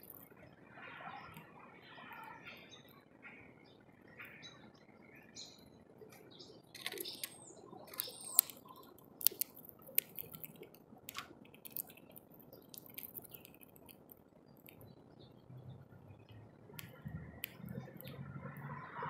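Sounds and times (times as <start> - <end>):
small birds chirping: 0.0 - 19.0
sharp clicks: 6.1 - 15.0, 16.2 - 18.8.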